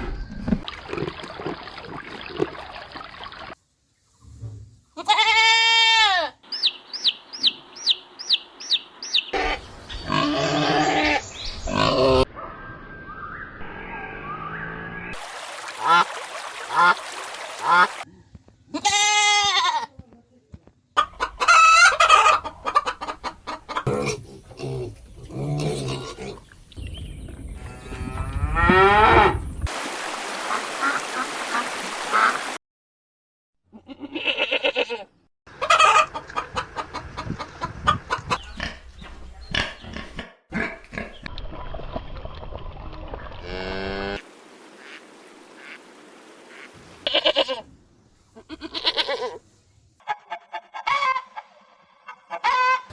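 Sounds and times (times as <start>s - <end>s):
farm animals calling: 5.0s - 12.3s, 46.5s - 47.7s, 48.4s - 52.9s
poultry calling: 46.5s - 47.7s, 50.0s - 52.9s.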